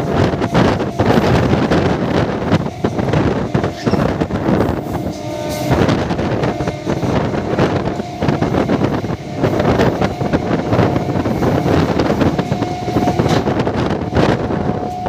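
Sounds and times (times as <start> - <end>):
train wheels rumbling on rail: 0.0 - 15.0
wind buffeting microphone: 0.0 - 15.0.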